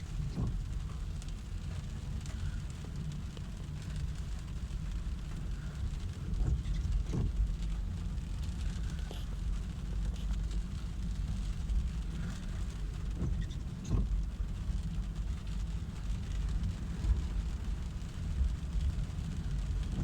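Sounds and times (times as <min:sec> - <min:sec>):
car cabin rumble: 0:00.0 - 0:20.0
light rain on car: 0:00.0 - 0:20.0.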